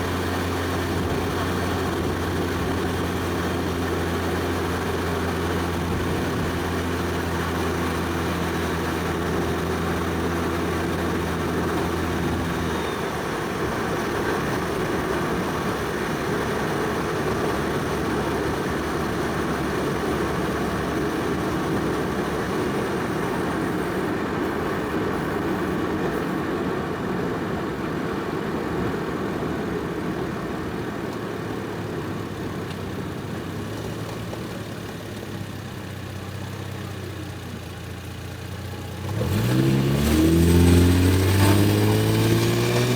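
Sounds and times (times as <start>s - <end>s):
car engine cruising: 0.0s - 42.9s
road noise: 0.0s - 42.9s.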